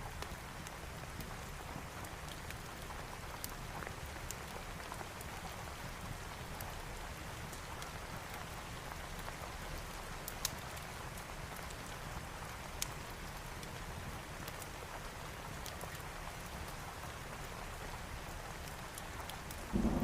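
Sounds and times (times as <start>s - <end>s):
steady rain: 0.0s - 20.0s
fireplace fire popping and crackling: 0.1s - 20.0s.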